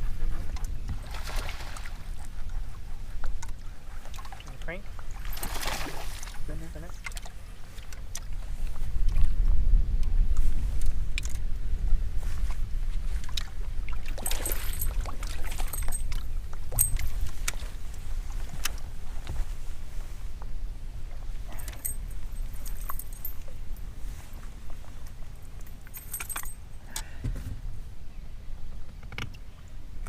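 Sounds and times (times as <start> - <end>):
boat engine rumble: 0.0 - 30.0
light metallic jingles: 4.2 - 7.2, 14.1 - 17.8, 21.4 - 27.3.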